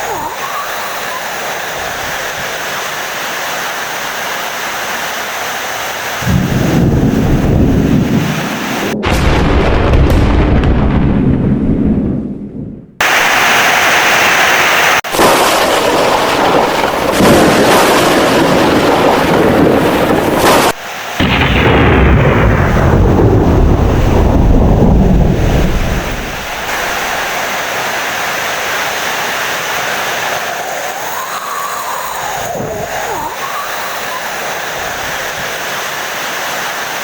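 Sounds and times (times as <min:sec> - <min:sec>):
loud rain: 0:00.0 - 0:10.5, 0:13.0 - 0:37.0
rumbling thunder: 0:06.2 - 0:13.3, 0:15.1 - 0:27.4.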